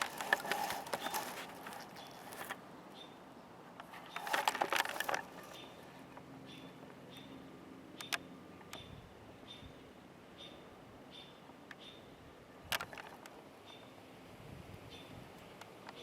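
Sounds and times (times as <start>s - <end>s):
crackling noise: 0.0s - 2.6s, 3.8s - 6.3s.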